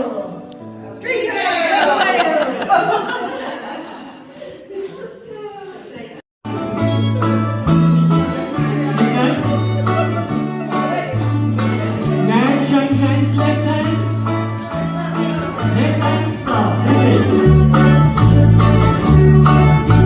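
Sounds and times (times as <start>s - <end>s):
plucked string instruments: 6.5s - 20.0s.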